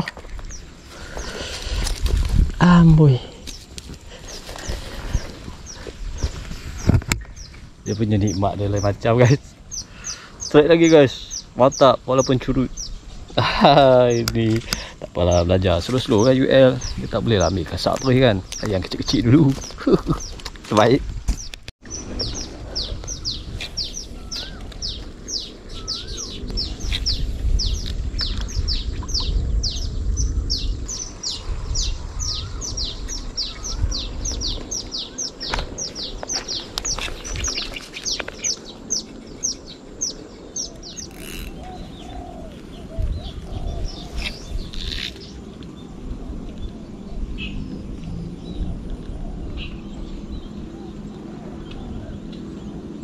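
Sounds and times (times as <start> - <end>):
bird chirps: 3.5 - 53.0
low rumble: 21.1 - 37.5.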